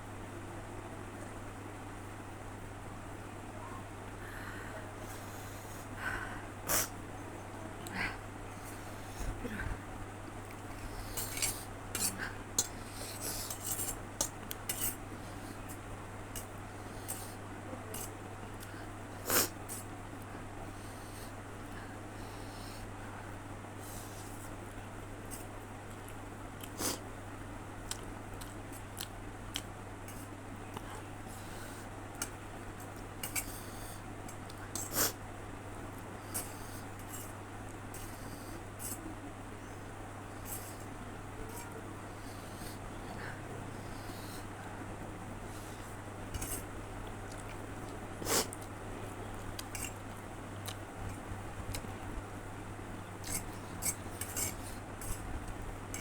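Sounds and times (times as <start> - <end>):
steady low hum: 0.0 - 56.0
person chewing noodles: 45.4 - 48.7, 49.4 - 52.1, 53.2 - 56.0
cutlery clinking against a bowl: 53.2 - 55.2.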